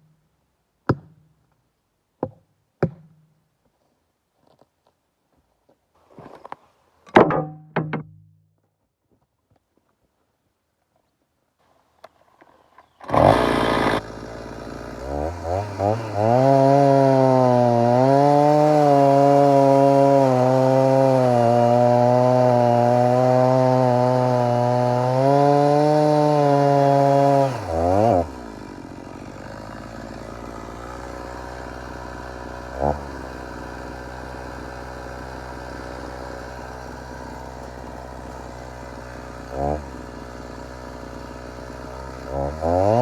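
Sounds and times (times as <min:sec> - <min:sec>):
chainsaw cutting log: 0:12.5 - 0:43.0.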